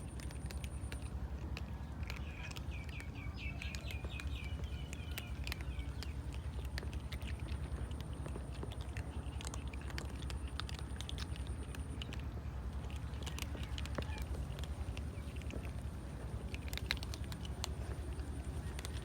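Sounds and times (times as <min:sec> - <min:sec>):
cats crunching dry food: 0:00.0 - 0:19.0
bird chirping: 0:02.0 - 0:07.5.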